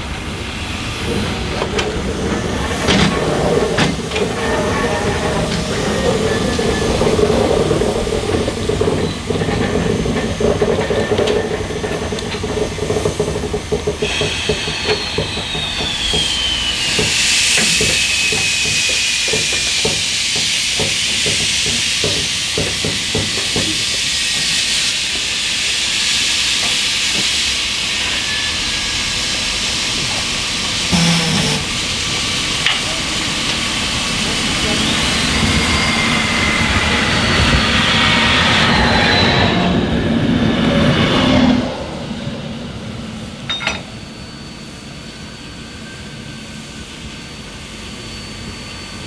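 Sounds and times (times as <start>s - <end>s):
steam locomotive hissing steam: 0.0s - 49.0s
high whine falling in pitch: 30.9s - 31.9s.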